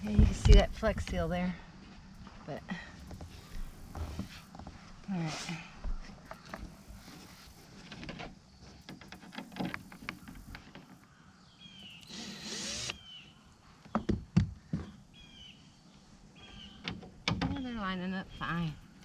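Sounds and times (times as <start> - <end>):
birds chirping: 8.4 - 19.0
cordless drill running: 12.0 - 13.0.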